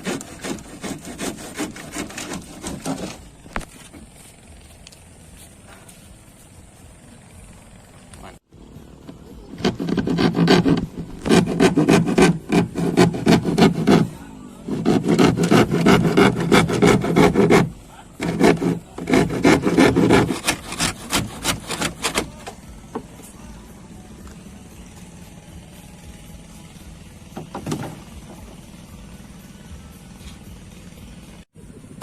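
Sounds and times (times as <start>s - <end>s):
hand tool scraping wood: 0.0s - 4.4s, 9.4s - 22.6s.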